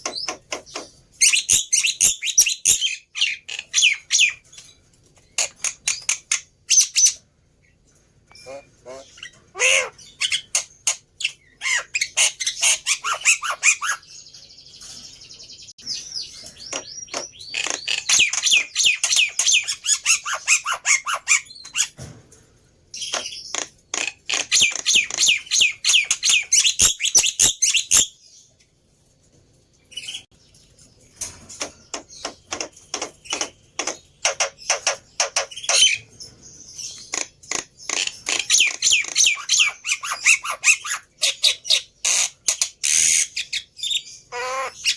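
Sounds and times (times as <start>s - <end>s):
bird harsh chattering calls: 8.3s - 14.1s, 16.0s - 22.0s, 23.0s - 28.1s, 31.6s - 36.1s, 36.8s - 44.9s.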